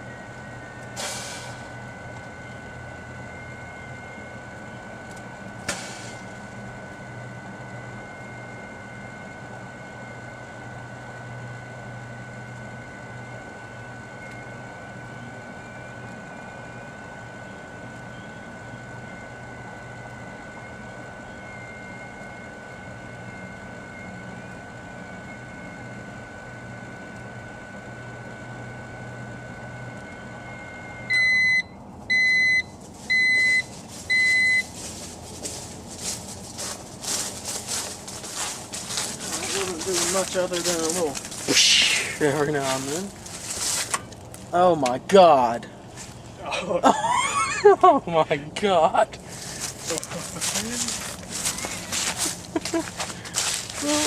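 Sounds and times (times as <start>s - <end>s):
microwave beeping: 0.0s - 34.8s
microwave oven humming: 0.0s - 54.0s.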